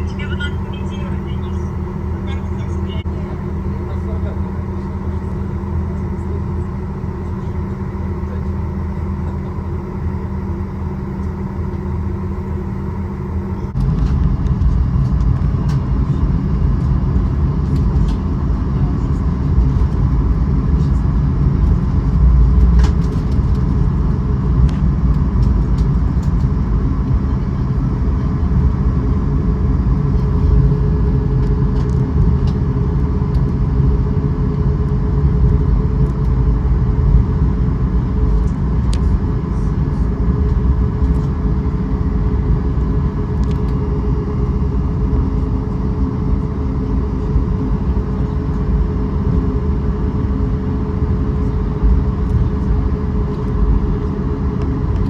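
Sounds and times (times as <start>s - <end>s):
vehicle rumble from inside: 0.0s - 55.0s.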